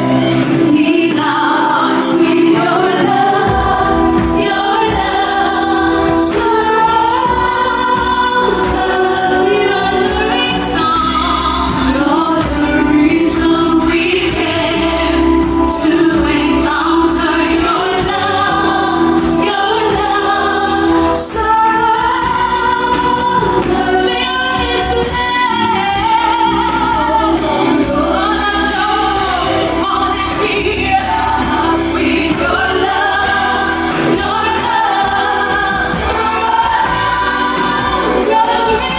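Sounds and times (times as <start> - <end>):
choir and congregation singing: 0.0 - 38.9
instrumental backing: 0.0 - 38.9.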